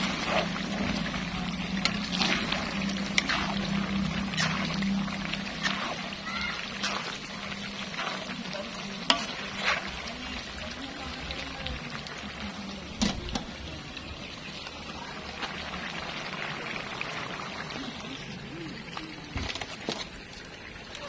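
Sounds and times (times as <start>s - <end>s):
food sizzling in a pan: 0.0s - 19.6s.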